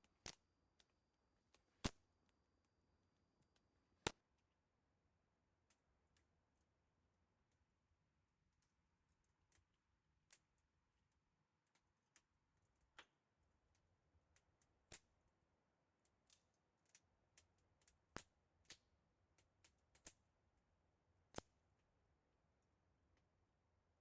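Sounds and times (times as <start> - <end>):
faint sharp clicks: 21.3 - 21.5.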